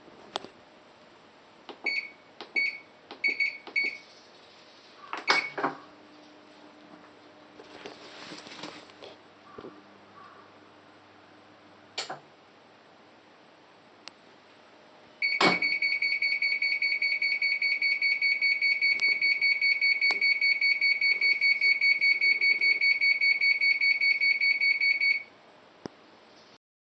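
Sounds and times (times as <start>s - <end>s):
pulsing high-pitched alarm beep: 15.2s - 25.3s.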